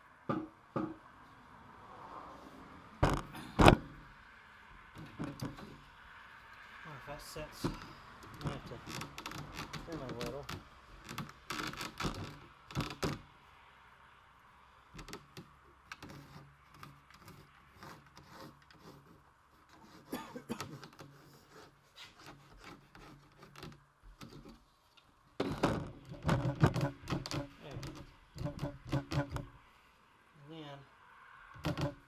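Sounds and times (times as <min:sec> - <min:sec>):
knocks and taps on plywood: 0:00.3 - 0:01.0, 0:25.4 - 0:29.5.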